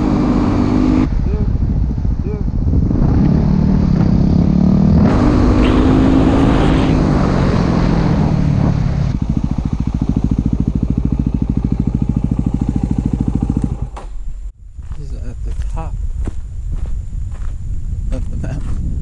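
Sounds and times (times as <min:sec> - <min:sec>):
motorcycle engine chugging: 0:00.0 - 0:14.6.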